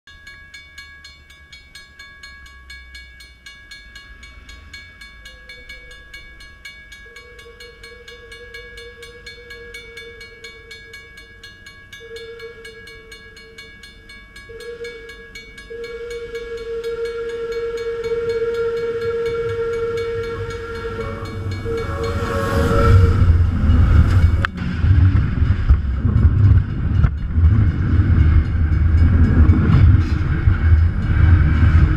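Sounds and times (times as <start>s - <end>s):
rumble of wheels and machinery: 0.1s - 31.9s
locomotive horn blasts: 7.0s - 13.9s, 14.5s - 25.7s.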